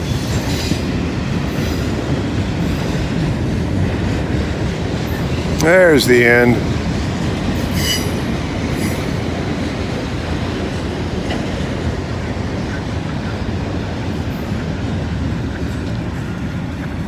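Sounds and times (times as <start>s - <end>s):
freight train wheels rumbling on rail: 0.0s - 17.0s.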